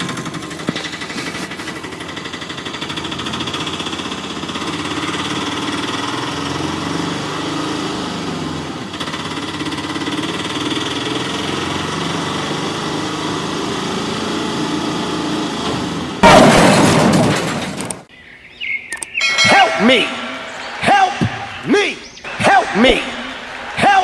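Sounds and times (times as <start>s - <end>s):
small motor rattling buzz: 0.0s - 15.0s.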